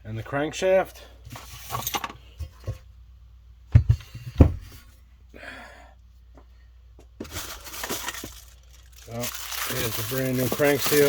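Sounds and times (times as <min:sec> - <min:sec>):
parts knocking on workbench: 0:03.7 - 0:04.8.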